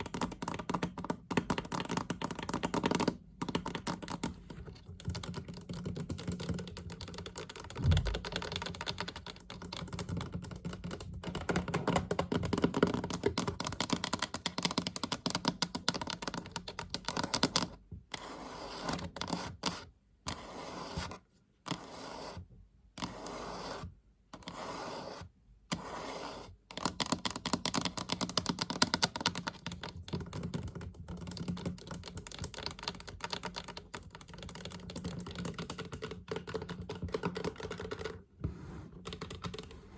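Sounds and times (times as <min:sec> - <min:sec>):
fast tapping on a chest: 0:00.0 - 0:17.7, 0:26.7 - 0:38.2.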